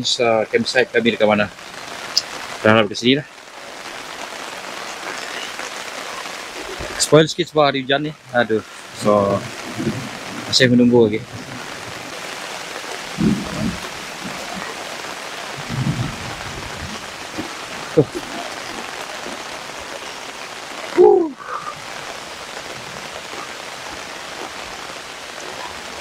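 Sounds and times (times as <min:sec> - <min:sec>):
steady rain: 0:00.0 - 0:26.0
short low sounds: 0:21.0 - 0:21.6.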